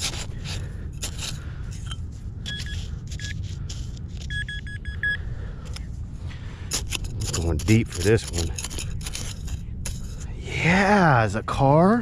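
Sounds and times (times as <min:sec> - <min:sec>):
sand scoop digging in sand: 0:00.0 - 0:04.5, 0:06.6 - 0:11.0
metal detector beeping: 0:01.8 - 0:03.4, 0:04.1 - 0:05.2.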